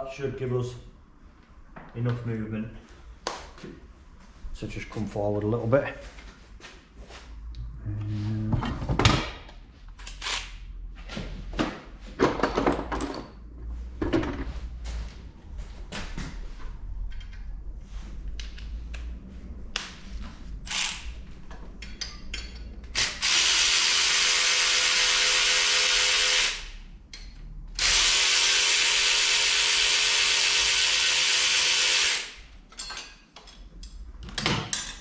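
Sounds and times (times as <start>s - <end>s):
clicks and knocks of handling parts: 17.1s - 17.5s, 18.2s - 20.0s, 21.5s - 23.0s, 32.7s - 35.0s
power tool running: 23.0s - 26.8s, 27.8s - 32.4s.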